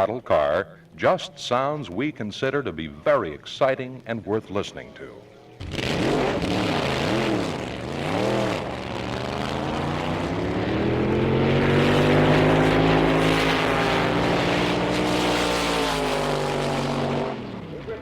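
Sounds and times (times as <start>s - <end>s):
drag racing car engine revving: 5.6s - 18.0s.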